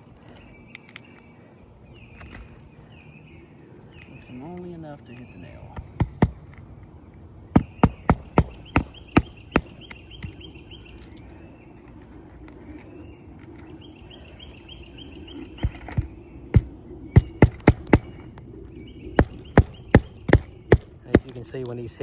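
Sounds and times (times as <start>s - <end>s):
faint rapid chirping: 0.0s - 22.0s
hammer striking nails: 5.8s - 6.6s, 7.5s - 10.4s, 15.6s - 18.2s, 19.2s - 21.4s.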